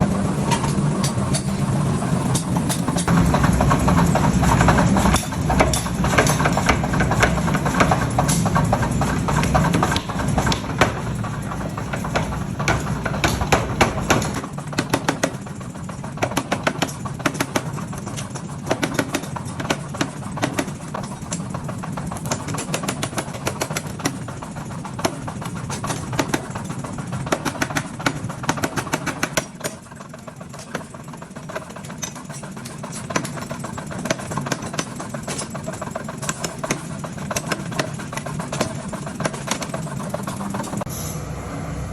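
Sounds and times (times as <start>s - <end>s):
low machine drone: 0.0s - 16.2s, 39.8s - 41.9s
hammer striking hot steel: 0.4s - 15.5s.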